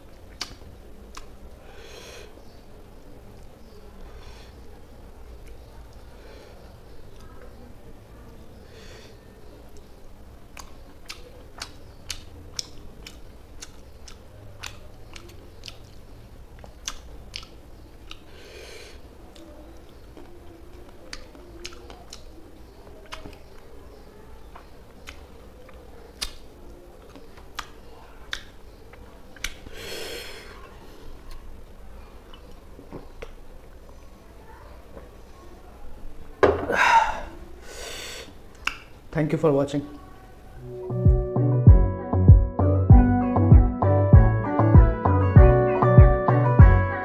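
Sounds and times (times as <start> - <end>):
mouth smacks and clicks: 0.1 - 1.5, 5.4 - 6.1, 9.7 - 23.8, 24.5 - 31.5, 32.2 - 33.4, 38.2 - 39.0
chewing and crunching: 9.7 - 18.4, 19.2 - 23.8, 24.4 - 29.7, 30.5 - 33.9.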